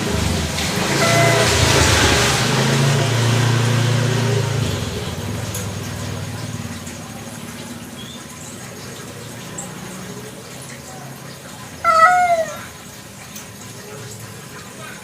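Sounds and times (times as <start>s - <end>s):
vehicle engine passing by: 0.0s - 7.9s.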